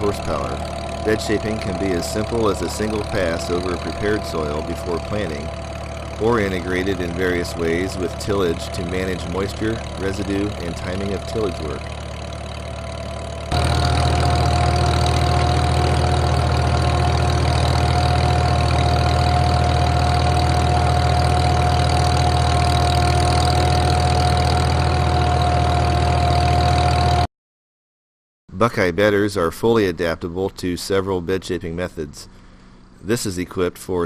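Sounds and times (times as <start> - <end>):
high-pitched whine: 0.0 - 12.0
tractor engine running: 0.0 - 27.3.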